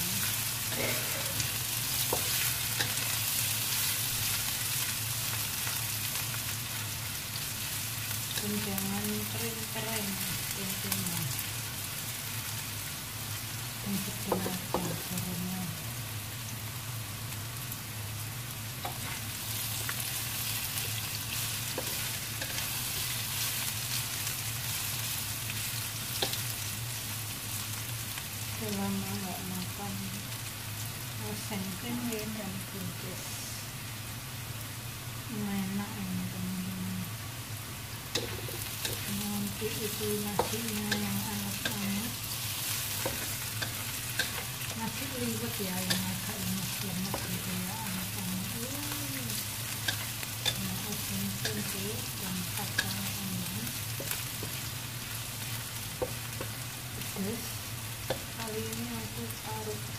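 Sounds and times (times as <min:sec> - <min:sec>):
food sizzling in oil: 0:00.0 - 0:59.9
spatula scraping a wok: 0:00.2 - 0:04.8, 0:18.8 - 0:24.2, 0:38.1 - 0:39.2, 0:39.8 - 0:47.5
steady low hum: 0:35.0 - 0:59.9.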